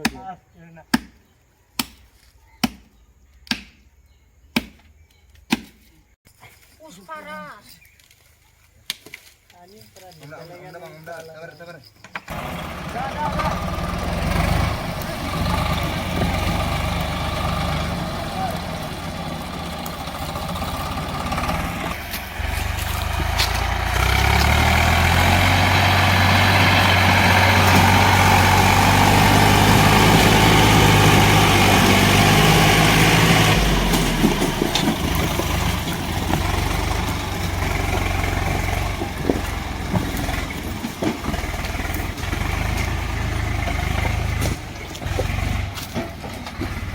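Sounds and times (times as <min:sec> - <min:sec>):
tractor engine revving: 0:12.3 - 0:46.9
knocks and clunks: 0:33.5 - 0:46.9.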